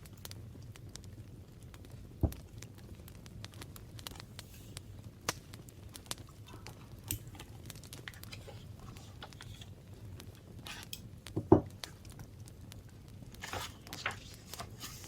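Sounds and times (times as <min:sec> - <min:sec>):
paper rustling: 0:06.5 - 0:11.0, 0:13.4 - 0:15.0.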